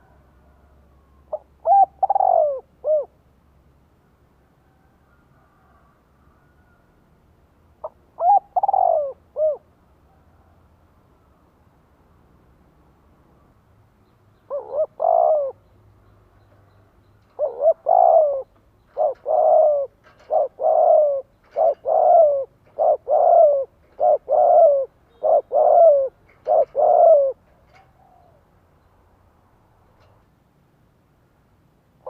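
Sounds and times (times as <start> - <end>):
dove cooing: 1.3 - 3.2, 7.8 - 9.7, 14.5 - 15.6, 17.2 - 28.4.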